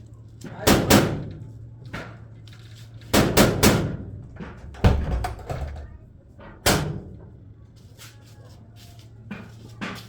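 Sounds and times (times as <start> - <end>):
sharp bangs: 3.2 - 7.2.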